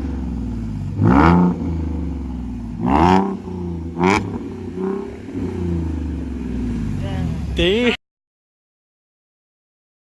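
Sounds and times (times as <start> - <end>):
car engine idling and revving: 0.0 - 8.0.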